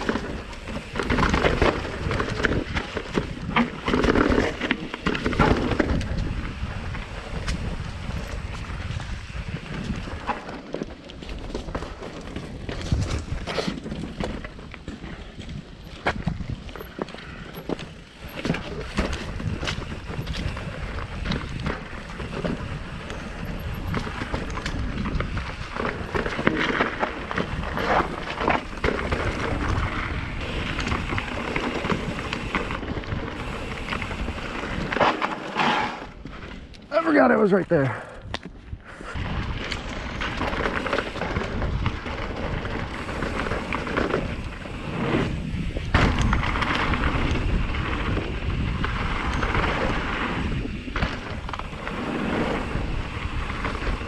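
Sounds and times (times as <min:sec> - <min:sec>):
tyres and frame knocking ground: 0:00.0 - 0:33.1, 0:33.9 - 0:36.9
wind rumble on microphone: 0:00.0 - 0:35.4, 0:38.2 - 0:54.0
mountain bike rattling down trail: 0:00.0 - 0:54.0
bike rattling knocks: 0:21.1 - 0:25.0.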